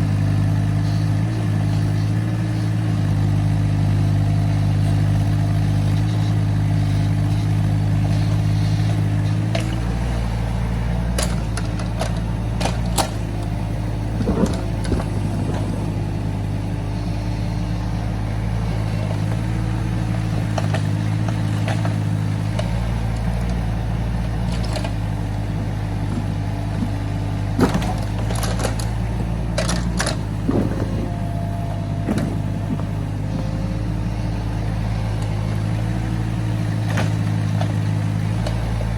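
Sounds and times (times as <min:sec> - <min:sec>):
excavator engine running: 0:00.0 - 0:38.9
sharp knocks and clanks: 0:08.8 - 0:16.0, 0:20.2 - 0:33.8.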